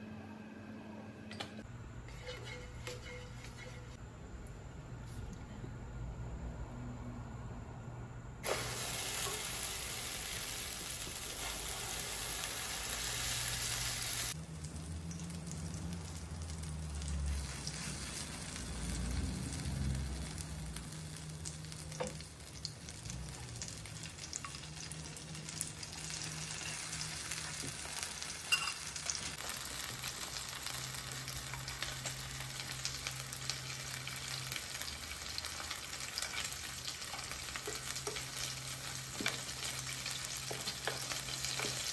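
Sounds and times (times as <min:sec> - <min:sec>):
eggplant sizzling in oil: 0:08.4 - 0:41.9.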